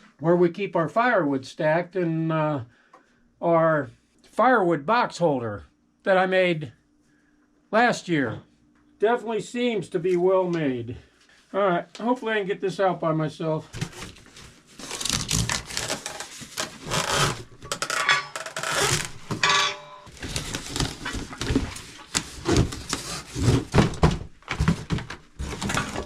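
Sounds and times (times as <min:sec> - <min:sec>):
cardboard rubbing and scraping: 0:13.8 - 0:17.5, 0:20.1 - 0:23.9.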